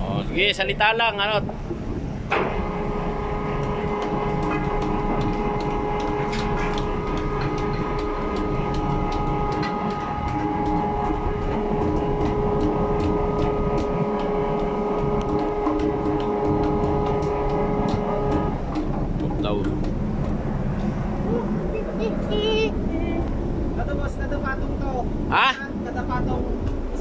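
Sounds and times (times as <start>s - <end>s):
winch motor hum: 2.2s - 23.8s.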